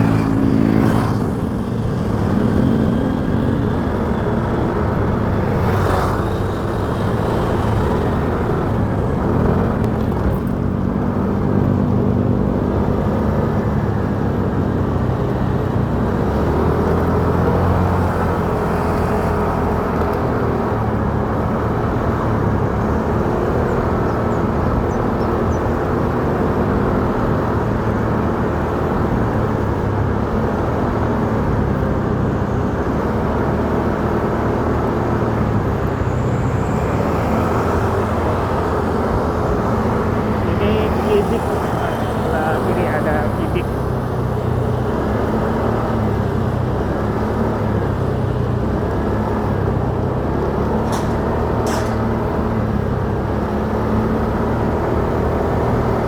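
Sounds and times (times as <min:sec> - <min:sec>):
motorcycle engine running: 0:00.0 - 0:14.0
road noise: 0:00.0 - 0:56.0.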